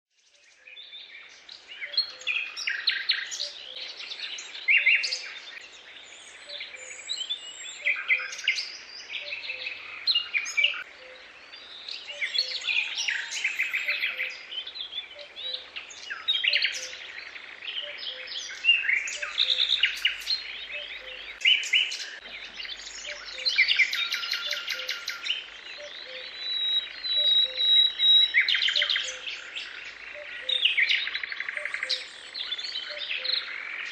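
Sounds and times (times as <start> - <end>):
songbirds chorus: 0.1 - 33.9.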